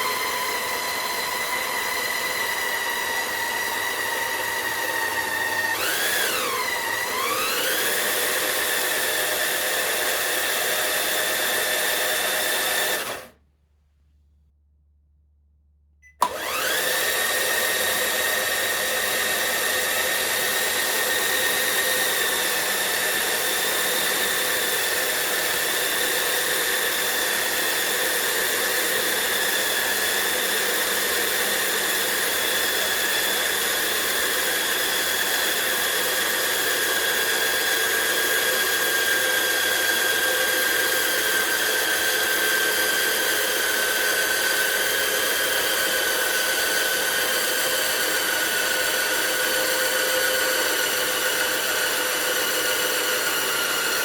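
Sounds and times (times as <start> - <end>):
electric motor whine: 0.0 - 13.3, 16.2 - 54.0
motor switch click: 16.0 - 16.8.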